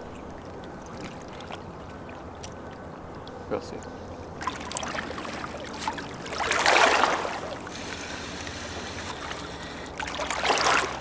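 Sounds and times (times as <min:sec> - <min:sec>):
river water lapping: 0:00.0 - 0:11.0
water splashing rushes: 0:04.4 - 0:11.0.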